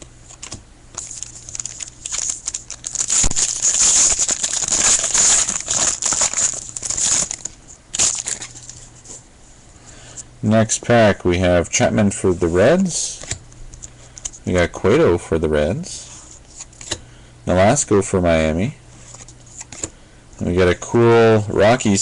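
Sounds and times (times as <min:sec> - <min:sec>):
card pack wrapper crinkling: 0:00.3 - 0:08.9.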